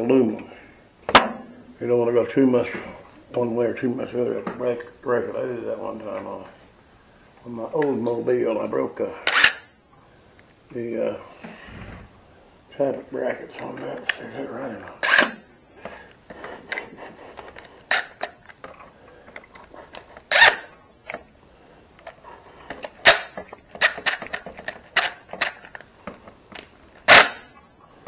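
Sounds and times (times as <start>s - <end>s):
hand tools clicking and knocking: 22.7s - 27.3s.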